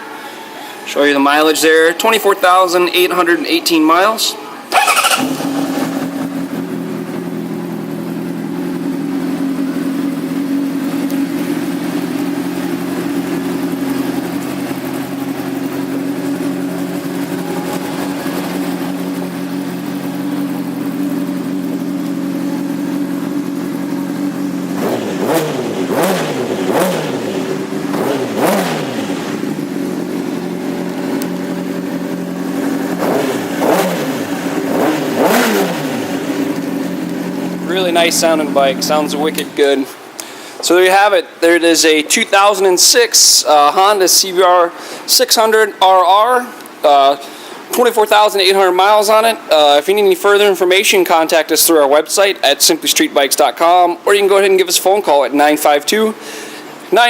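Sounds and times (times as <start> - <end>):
motorcycle engine idling and revving: 4.7 - 40.1.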